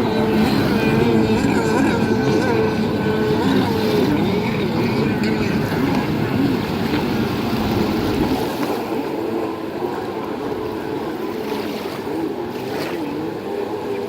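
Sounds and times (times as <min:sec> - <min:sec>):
jet ski engines revving: 0:00.0 - 0:14.0
water wash: 0:00.0 - 0:14.0.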